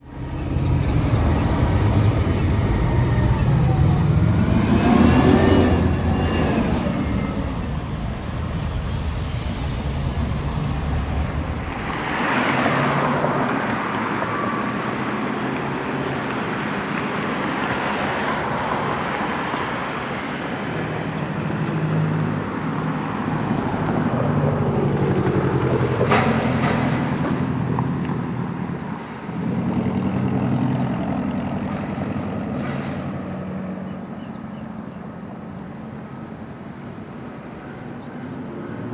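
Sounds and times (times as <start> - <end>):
garbage truck engine running: 0.0 - 12.9
hiss burst: 0.2 - 12.8.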